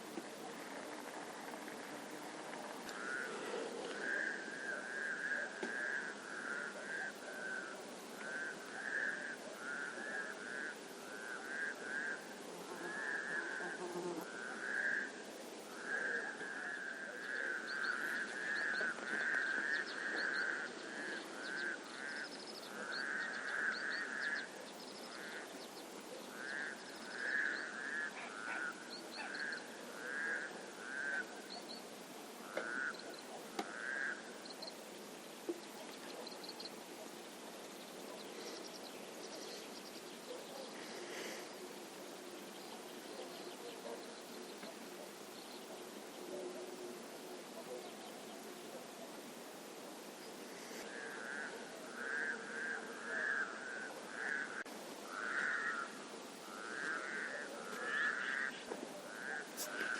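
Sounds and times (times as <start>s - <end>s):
frogs calling: 0.4s - 59.9s.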